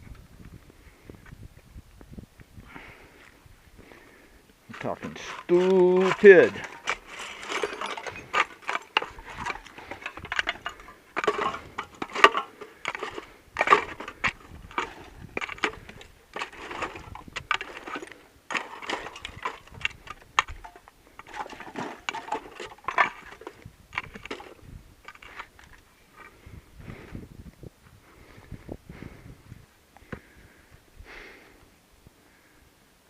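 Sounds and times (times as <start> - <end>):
footsteps crunching on stony ground: 0.1 - 30.4
debris clinking: 4.7 - 25.8.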